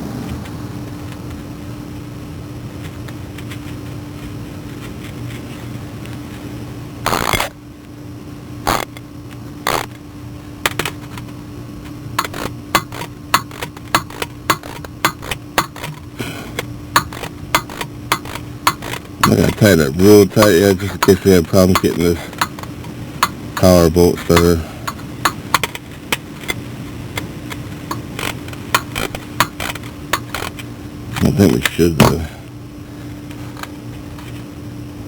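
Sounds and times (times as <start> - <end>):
steady hum: 0.0 - 35.0
hand ratchet clicking: 12.2 - 16.0, 16.6 - 19.6, 20.4 - 23.7, 27.9 - 30.6
metal knocks: 12.2 - 16.0, 17.0 - 19.6, 21.0 - 23.7, 27.9 - 30.5.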